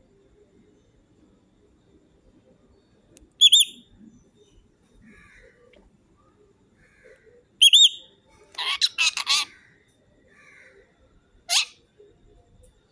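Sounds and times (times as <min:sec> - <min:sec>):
parrot whistling: 0:03.4 - 0:03.8, 0:07.6 - 0:08.0, 0:08.6 - 0:09.5, 0:11.5 - 0:11.8
parrot squawking: 0:07.6 - 0:08.0, 0:08.6 - 0:09.5, 0:11.5 - 0:11.8
soft parrot chatter: 0:08.6 - 0:09.5, 0:11.5 - 0:11.8.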